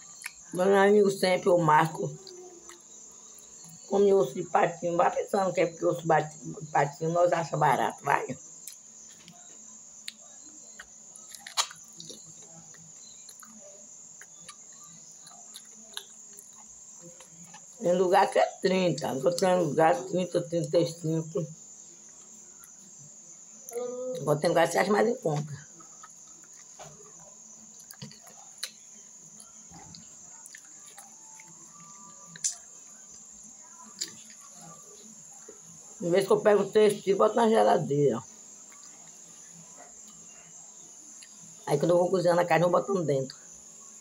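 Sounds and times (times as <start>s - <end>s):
wet chewing and mouth clicks: 0.0s - 0.5s, 2.2s - 3.8s, 10.0s - 17.8s, 25.6s - 33.3s, 33.9s - 34.8s, 38.6s - 39.3s
crickets chirring: 0.0s - 44.0s
person chewing meat off a bone: 10.8s - 13.6s
wet mouth clicks and smacks: 10.8s - 13.6s.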